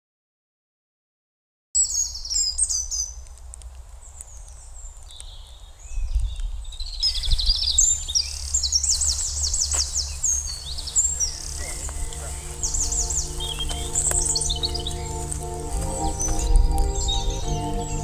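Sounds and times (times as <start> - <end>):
birds chirping and trilling: 1.8 - 3.2, 4.0 - 18.0
low steady hum: 7.8 - 18.0.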